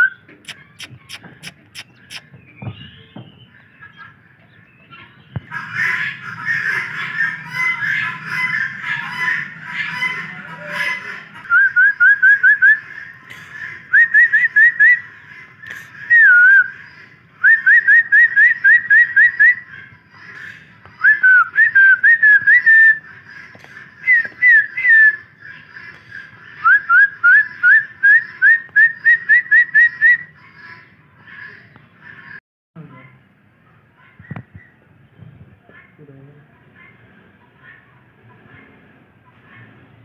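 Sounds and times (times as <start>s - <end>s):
bird whistling: 0.0s - 3.6s, 11.4s - 16.8s, 17.4s - 19.7s, 21.0s - 23.1s, 24.0s - 25.4s, 26.6s - 30.4s.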